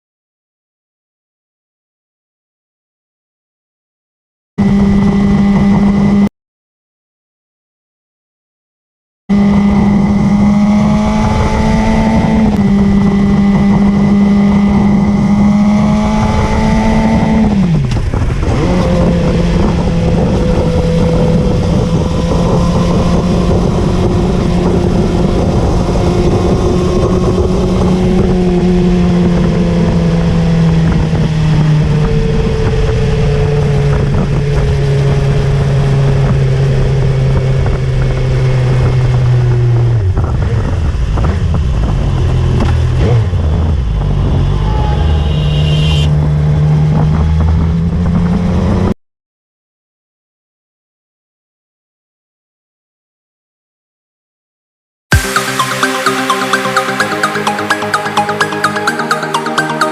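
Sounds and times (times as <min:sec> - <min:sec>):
motorcycle engine running: 0:09.3 - 0:48.7
wind noise: 0:09.4 - 0:48.9.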